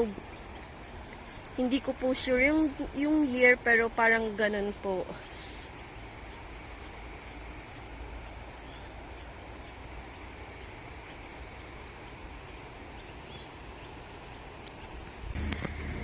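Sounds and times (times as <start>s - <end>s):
creek rushing: 0.0s - 16.0s.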